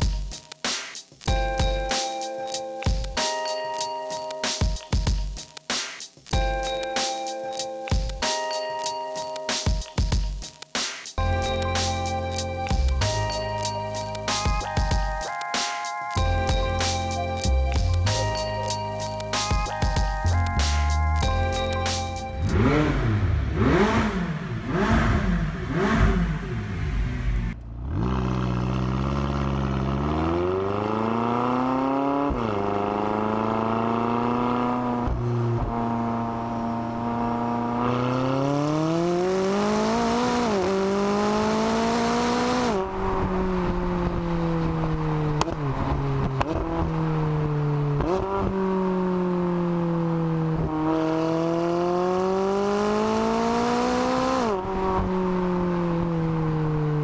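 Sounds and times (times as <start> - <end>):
car engine revving through gears: 22.0 - 57.0.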